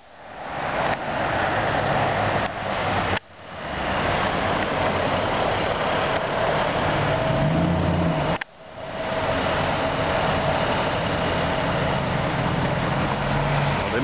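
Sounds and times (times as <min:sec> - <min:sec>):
road noise: 0:00.0 - 0:14.0
vehicle engine running: 0:03.8 - 0:14.0.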